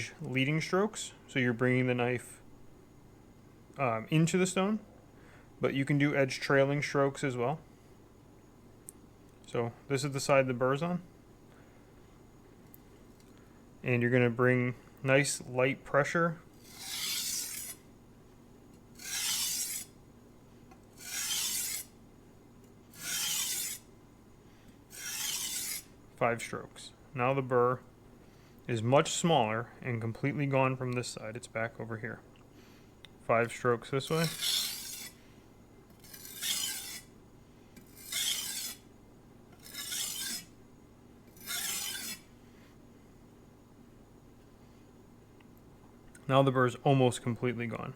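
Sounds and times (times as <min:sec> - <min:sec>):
knife scraping on whetstone: 0:16.6 - 0:17.8, 0:18.9 - 0:20.0, 0:20.9 - 0:22.0, 0:22.9 - 0:23.9, 0:24.9 - 0:26.0, 0:34.0 - 0:35.2, 0:35.9 - 0:37.1, 0:37.8 - 0:38.9, 0:39.5 - 0:40.6, 0:41.3 - 0:42.3.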